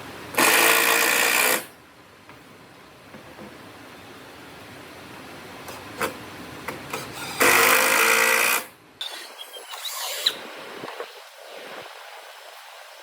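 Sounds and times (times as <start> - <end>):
power tool motor burst: 0.4 - 1.7, 7.2 - 10.4.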